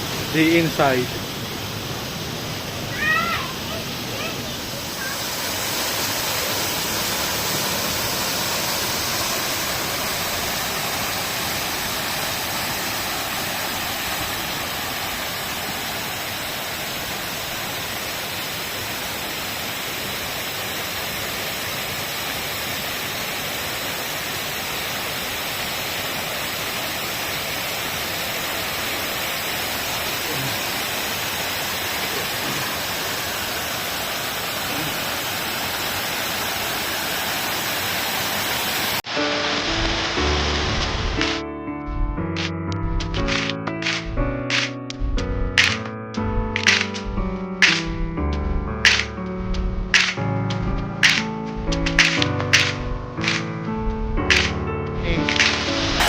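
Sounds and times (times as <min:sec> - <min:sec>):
steady rushing noise: 0:00.0 - 0:20.6, 0:39.6 - 0:56.0.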